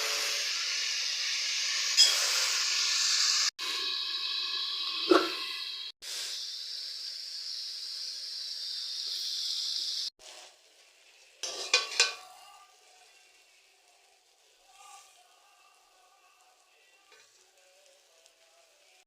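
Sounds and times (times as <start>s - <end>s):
vegetables sizzling in hot oil: 0.0s - 19.0s
utensil clinking against pan: 11.4s - 12.3s.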